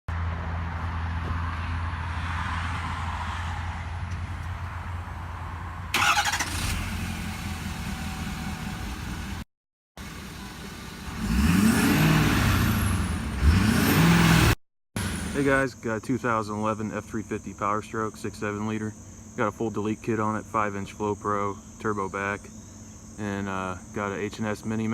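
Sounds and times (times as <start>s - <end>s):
diesel truck engine idling and revving: 0.1s - 15.7s.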